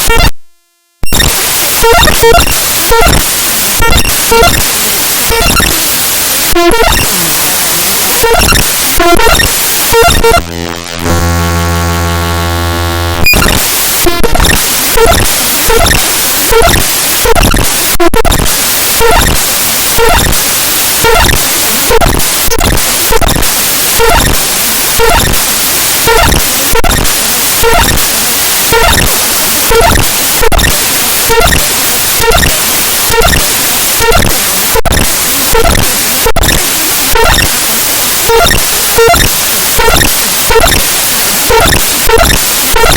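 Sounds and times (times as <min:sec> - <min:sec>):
harsh digital static: 0:00.0 - 0:00.3, 0:01.0 - 0:42.9
short tonal blips: 0:08.2 - 0:15.9.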